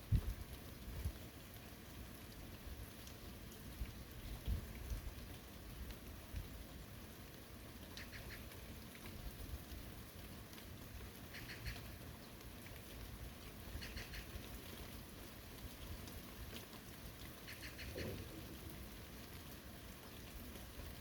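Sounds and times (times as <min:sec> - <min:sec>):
steady rain falling: 0:00.0 - 0:21.0
rapid chattering animal calls: 0:11.3 - 0:11.9, 0:13.8 - 0:14.3, 0:17.5 - 0:18.4.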